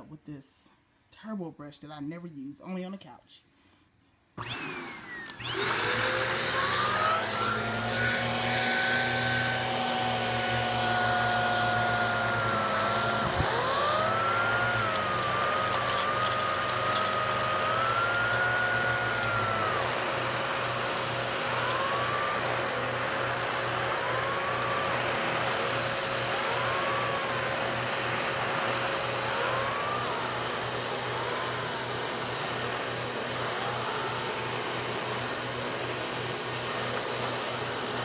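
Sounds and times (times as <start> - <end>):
vacuum cleaner running: 4.4 - 38.0
faint crackles: 14.7 - 19.4.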